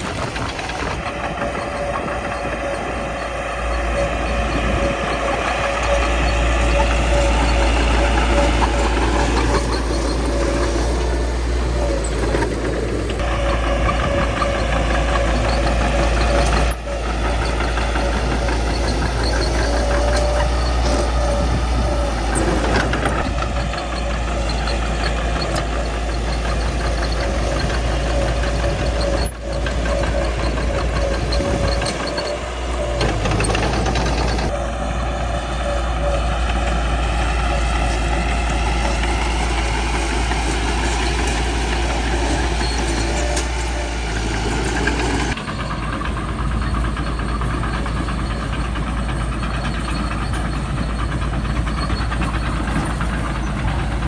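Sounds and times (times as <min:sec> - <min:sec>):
mechanical clatter: 0:00.0 - 0:34.6
bulldozer diesel engine rumbling: 0:00.0 - 0:54.0.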